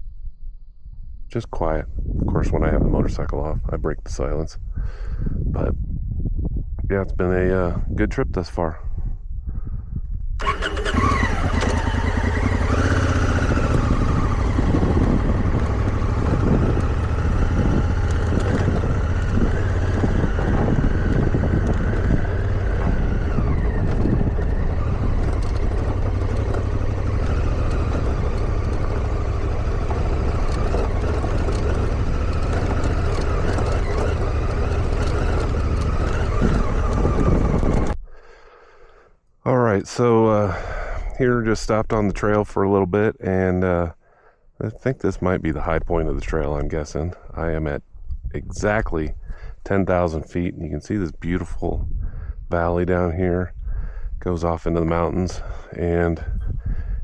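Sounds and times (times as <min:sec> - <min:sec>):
motorcycle engine running: 0:10.4 - 0:38.0.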